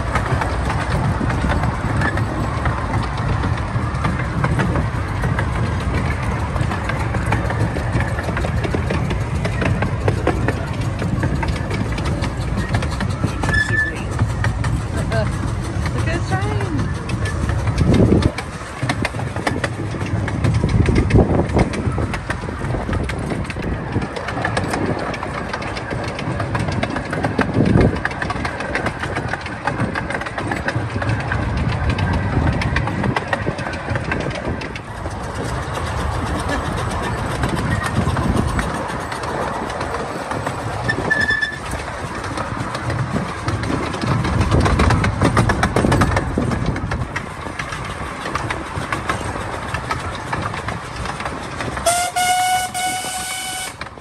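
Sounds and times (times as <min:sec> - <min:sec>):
miniature train wheels rumbling: 0:00.0 - 0:54.0
short high squeak: 0:13.5 - 0:14.0, 0:40.9 - 0:41.6.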